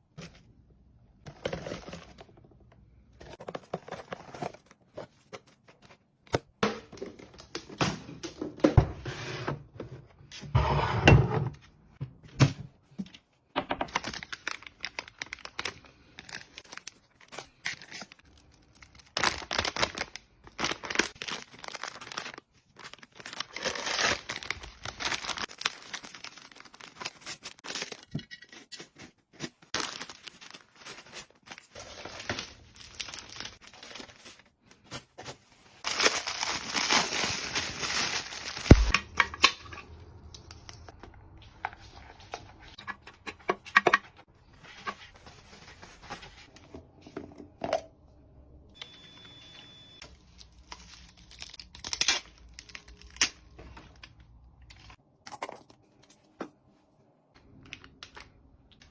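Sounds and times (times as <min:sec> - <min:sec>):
packaging crinkling and rustling: 0:13.8 - 0:39.7, 0:50.0 - 0:56.3
packaging tearing: 0:18.9 - 0:28.0, 0:29.7 - 0:34.3, 0:35.8 - 0:38.9, 0:50.4 - 0:53.4.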